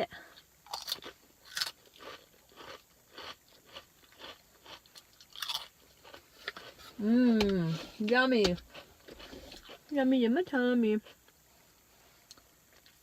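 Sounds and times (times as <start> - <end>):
chewing crunchy snack: 0.6 - 7.0, 8.4 - 9.9.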